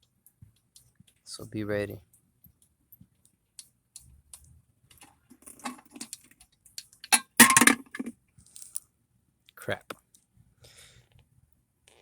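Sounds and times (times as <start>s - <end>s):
burst of clattering: 7.1s - 8.1s.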